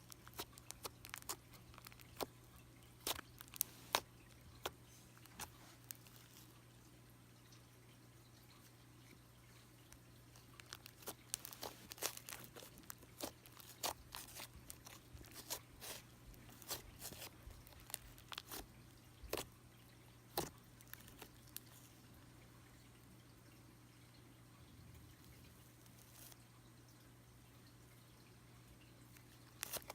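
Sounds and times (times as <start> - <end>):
slime squelching with sticky pops: 0.0 - 6.5, 9.9 - 19.6, 20.3 - 22.0, 25.3 - 26.4, 29.2 - 29.9.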